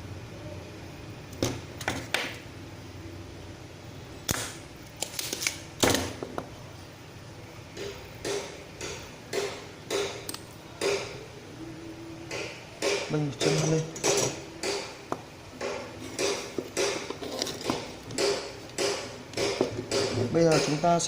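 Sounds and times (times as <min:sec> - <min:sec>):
tools tapping circuit board: 0:07.8 - 0:11.2, 0:12.3 - 0:21.0.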